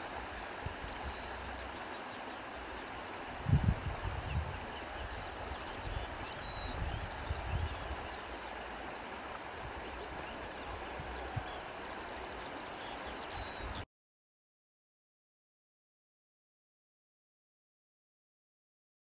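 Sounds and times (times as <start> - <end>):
rushing wind with rumbling gusts: 3.3 - 8.2.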